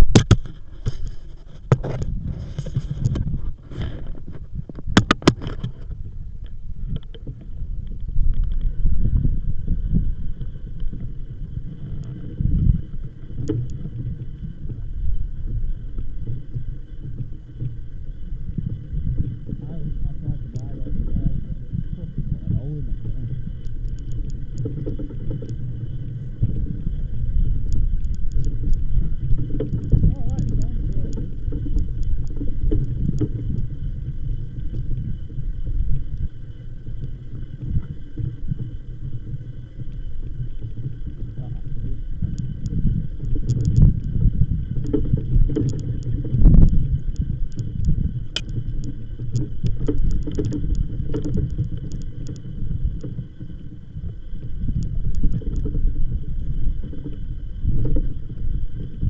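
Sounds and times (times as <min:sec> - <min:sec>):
faint high whine: 0:00.0 - 0:59.0
wind buffeting microphone: 0:00.0 - 0:59.0
light clicks: 0:42.3 - 0:53.2.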